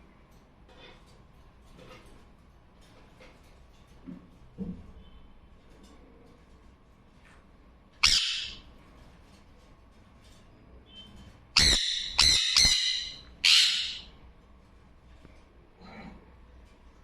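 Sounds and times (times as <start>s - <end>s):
parrot squawking: 8.0s - 8.7s, 11.6s - 14.2s.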